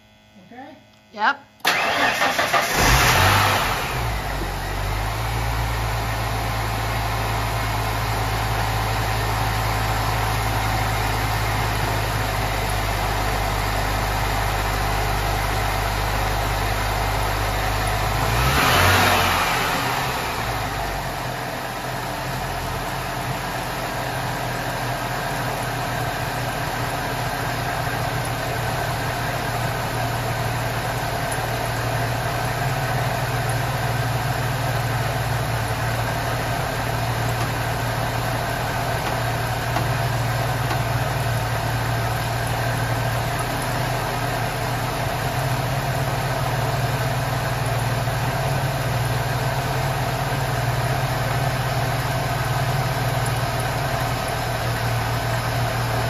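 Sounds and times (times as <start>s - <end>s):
car engine idling: 1.7s - 56.0s.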